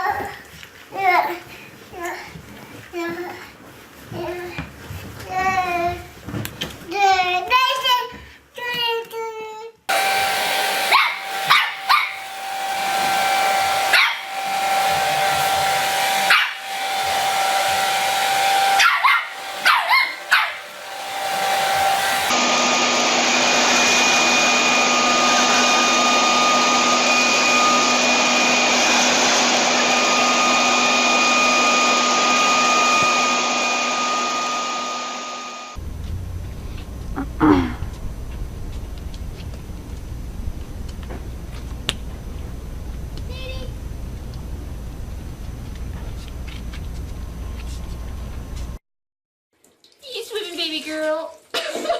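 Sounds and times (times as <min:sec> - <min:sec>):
appliance motor whirring: 0:09.9 - 0:35.8
loud electric motor whirring: 0:09.9 - 0:35.8
dog barking: 0:10.9 - 0:12.2, 0:13.9 - 0:14.3, 0:16.3 - 0:16.6, 0:18.8 - 0:20.6.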